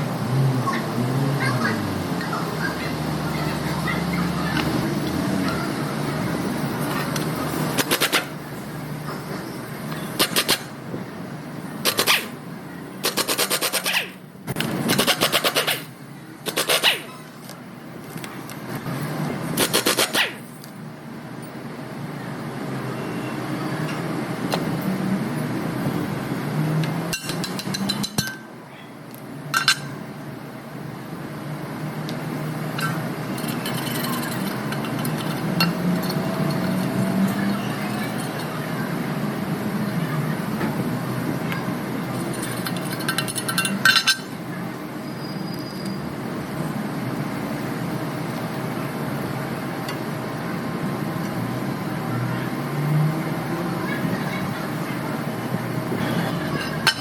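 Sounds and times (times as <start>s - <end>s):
metal tools clinking: 27.1s - 28.5s, 32.8s - 37.4s, 42.2s - 44.3s, 56.4s - 57.0s.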